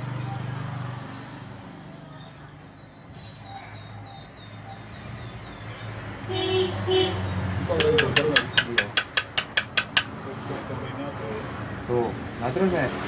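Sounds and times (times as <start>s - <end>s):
small bird chirping: 2.1s - 6.0s
vehicle horn beeping: 6.2s - 7.3s.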